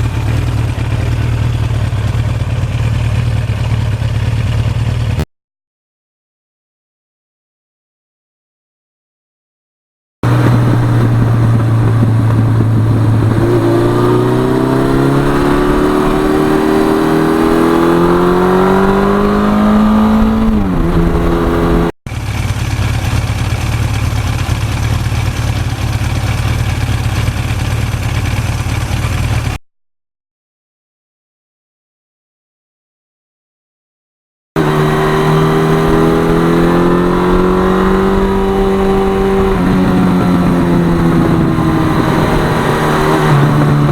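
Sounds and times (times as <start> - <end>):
motorcycle engine revving: 0.0 - 5.3, 10.2 - 29.6, 34.6 - 43.9.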